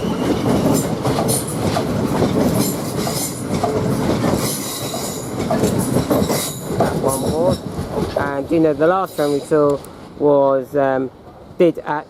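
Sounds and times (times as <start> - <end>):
train wheel and rail noise: 0.0 - 12.0
high-pitched wheel squeaks: 4.4 - 7.6.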